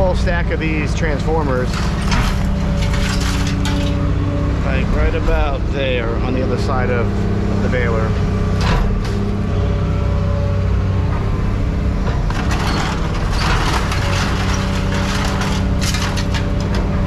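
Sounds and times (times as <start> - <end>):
engine drone: 0.0 - 17.0
crunching and cracking: 1.5 - 4.1, 12.3 - 17.0.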